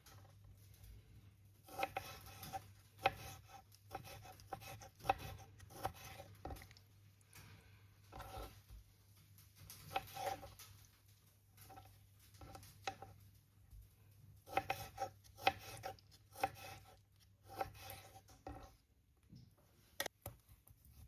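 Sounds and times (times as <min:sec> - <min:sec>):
food being cut on cutting board: 0:01.6 - 0:06.8, 0:08.1 - 0:08.6, 0:09.8 - 0:10.6, 0:14.4 - 0:18.8.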